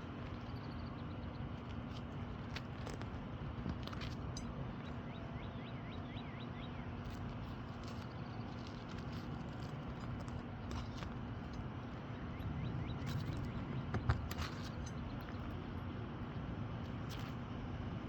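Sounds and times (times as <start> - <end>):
steady low hum: 0.0 - 18.0
bird chirping: 4.4 - 9.7, 11.9 - 15.4.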